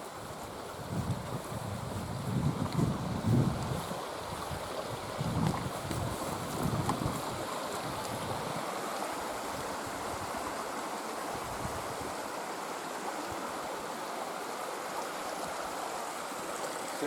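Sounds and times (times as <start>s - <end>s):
wind buffeting microphone: 0.0s - 8.7s, 11.3s - 12.2s
flowing water rushing: 0.0s - 17.0s.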